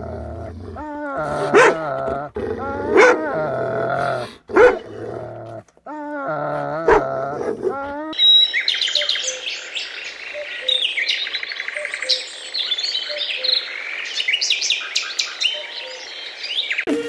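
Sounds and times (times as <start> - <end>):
songbirds chirping and singing: 6.2 - 17.0.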